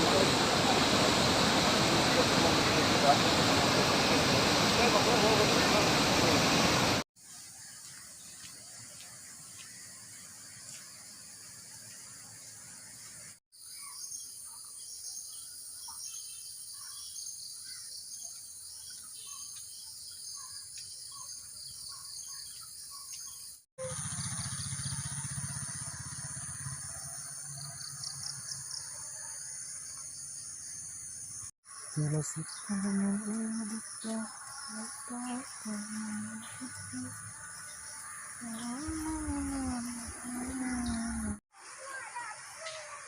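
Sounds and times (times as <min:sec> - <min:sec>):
high insect drone: 0:00.0 - 0:13.4, 0:23.8 - 0:43.0
birds chirping: 0:11.8 - 0:28.9, 0:29.8 - 0:41.4.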